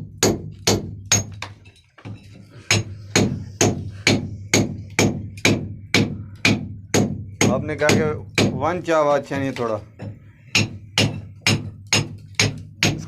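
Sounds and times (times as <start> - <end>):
hammer striking: 10.0 - 13.0.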